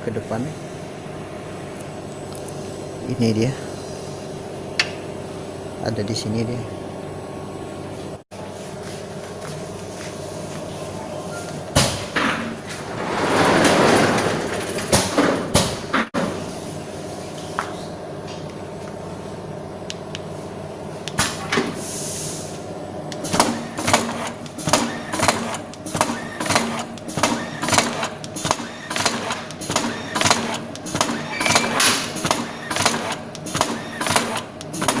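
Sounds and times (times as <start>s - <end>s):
motor hum: 0.0s - 35.0s
machine mechanism clacking: 23.2s - 35.0s.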